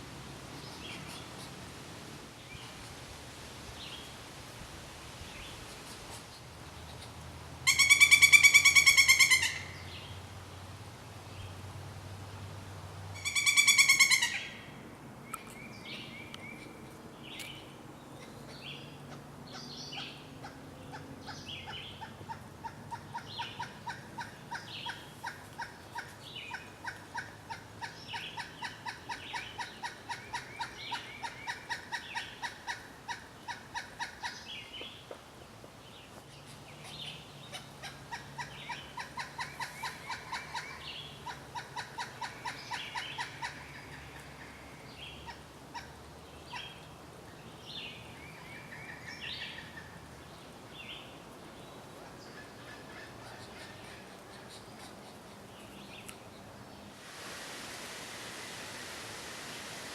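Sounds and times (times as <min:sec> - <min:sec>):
woodpecker calling: 0:06.8 - 0:10.1, 0:13.2 - 0:17.6, 0:18.2 - 0:35.0, 0:36.3 - 0:46.9, 0:52.0 - 0:56.2.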